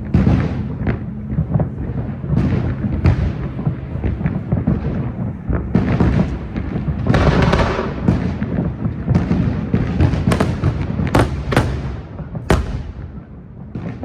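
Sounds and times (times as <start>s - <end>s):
fireworks booming: 0.0s - 14.0s
fireworks crackling: 0.0s - 14.0s
sharp bangs: 10.2s - 14.0s.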